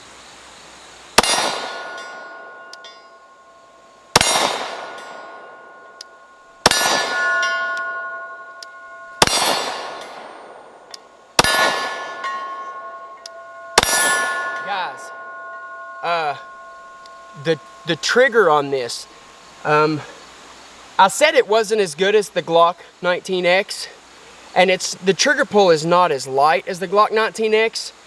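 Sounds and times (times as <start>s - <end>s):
pistol shots: 1.2s - 2.0s, 4.2s - 5.2s, 6.6s - 7.9s, 9.2s - 10.6s, 11.4s - 12.4s, 13.8s - 14.6s
steel target ringing: 1.2s - 19.3s.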